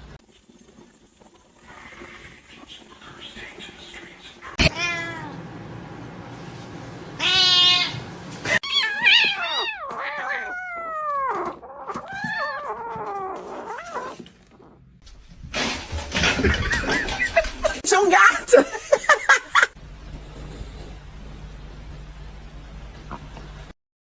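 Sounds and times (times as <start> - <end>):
cats meowing and yowling: 7.2 - 8.0, 8.6 - 14.7.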